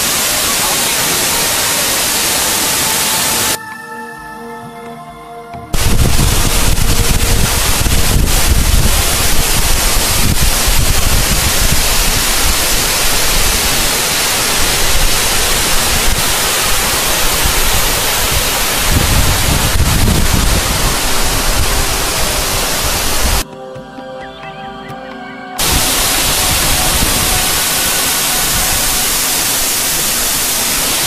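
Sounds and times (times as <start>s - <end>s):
waterfall rushing: 0.0s - 3.6s, 5.7s - 23.4s, 25.6s - 31.0s
wind buffeting microphone: 5.8s - 13.8s, 14.6s - 23.4s.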